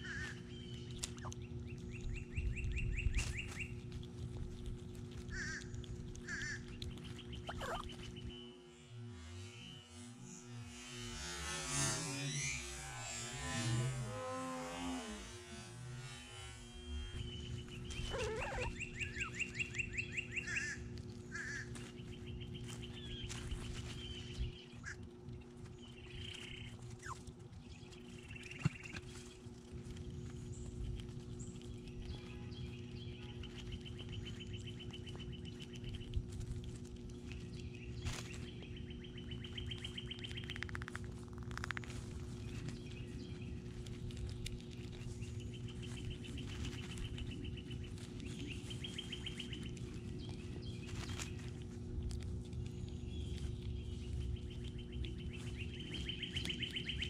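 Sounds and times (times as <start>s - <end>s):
steady low hum: 0.0s - 57.0s
songbird trills: 6.3s - 8.6s, 16.6s - 25.0s, 44.9s - 51.6s, 52.6s - 57.0s
bird chirps: 6.5s - 8.6s, 16.6s - 25.0s, 45.1s - 51.3s, 52.6s - 57.0s.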